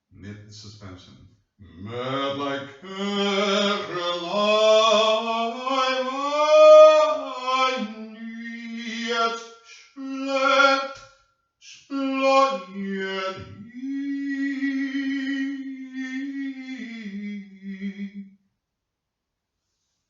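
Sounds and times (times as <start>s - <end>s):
person singing unaccompanied: 1.6s - 11.0s, 11.7s - 18.2s.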